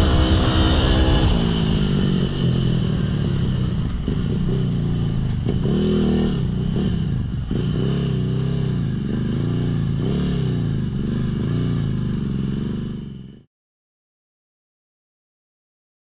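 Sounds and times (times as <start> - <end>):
engine clatter: 0.0 - 9.9, 10.6 - 13.3
motorbike engine revving: 0.0 - 13.5.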